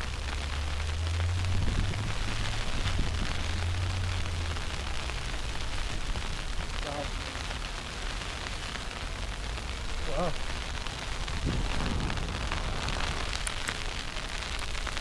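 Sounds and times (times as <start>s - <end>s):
snowstorm hiss: 0.0s - 15.0s
low rumble: 10.7s - 15.0s.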